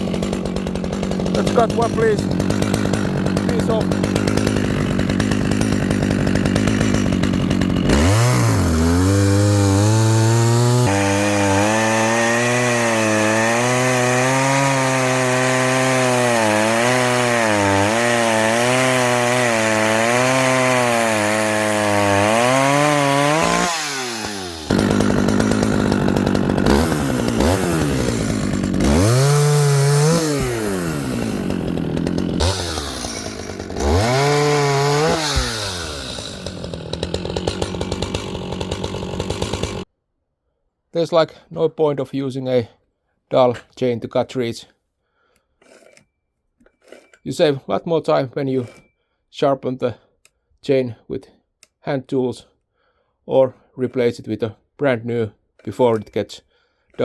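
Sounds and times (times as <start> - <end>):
chainsaw cutting wood: 0.0 - 39.9, 45.2 - 47.5, 48.5 - 48.9, 55.6 - 57.0.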